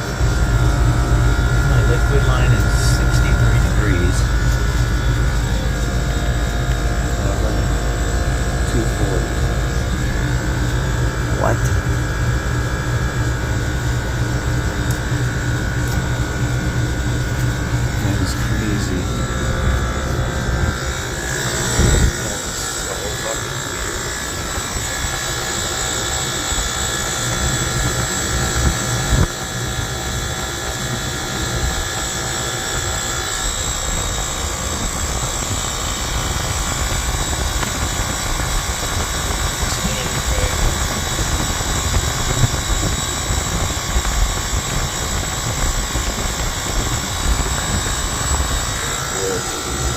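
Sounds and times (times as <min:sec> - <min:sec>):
rough low rumble: 0:00.0 - 0:25.3
fan rush: 0:00.0 - 0:49.9
motor hum: 0:00.0 - 0:49.9.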